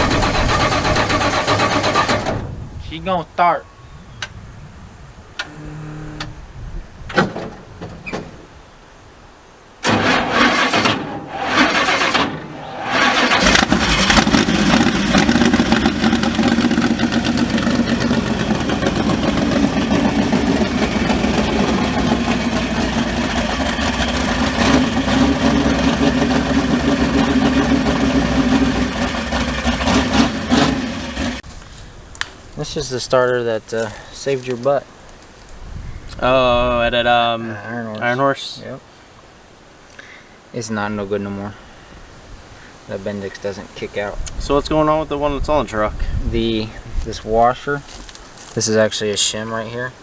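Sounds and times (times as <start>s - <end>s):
engine running: 0.0s - 2.5s, 9.8s - 31.4s
engine starter cranking: 0.0s - 2.6s, 9.8s - 31.4s.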